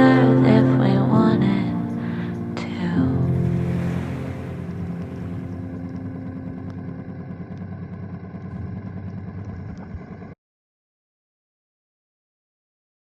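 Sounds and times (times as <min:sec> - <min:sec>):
motorcycle engine running: 0:04.0 - 0:10.4.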